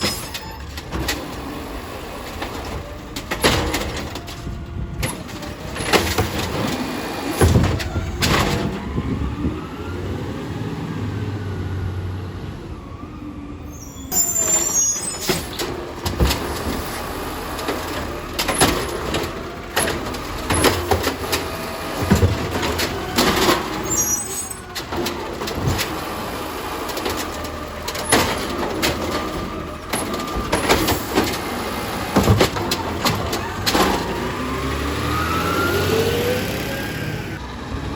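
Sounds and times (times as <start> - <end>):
metal clanks and knocks: 0.0 - 1.5, 2.2 - 8.9, 14.1 - 34.3
garbage truck engine running: 0.0 - 37.9.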